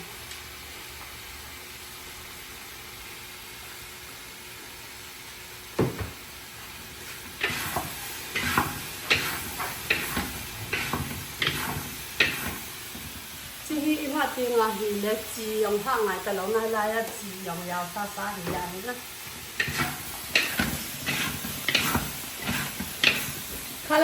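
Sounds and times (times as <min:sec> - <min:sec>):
food sizzling in a hot pan: 0:00.0 - 0:24.0
knock: 0:05.8 - 0:06.2
utensil scraping against pan: 0:07.1 - 0:12.6, 0:19.5 - 0:23.5.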